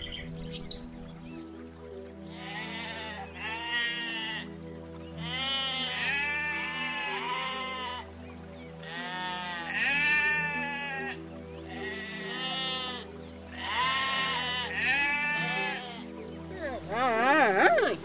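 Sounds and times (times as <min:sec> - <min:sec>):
background music: 0:00.0 - 0:18.0
animal calling: 0:05.2 - 0:08.1, 0:08.8 - 0:18.0.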